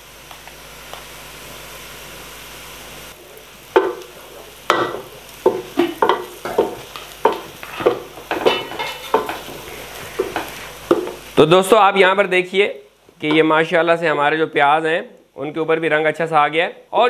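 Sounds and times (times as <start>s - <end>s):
onions sizzling in oil: 0.0s - 17.0s
wooden spoon scraping a pot: 5.5s - 11.2s.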